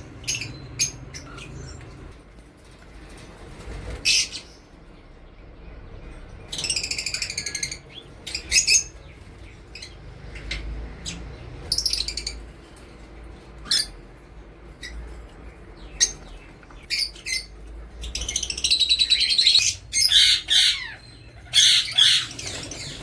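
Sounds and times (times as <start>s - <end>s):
parrots squawking: 13.6s - 14.2s, 15.9s - 23.0s.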